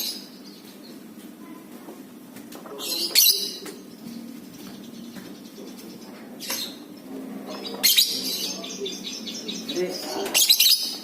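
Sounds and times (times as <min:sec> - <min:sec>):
steady low hum: 0:00.0 - 0:11.0
lovebird shrill calls and chattering: 0:02.8 - 0:11.0.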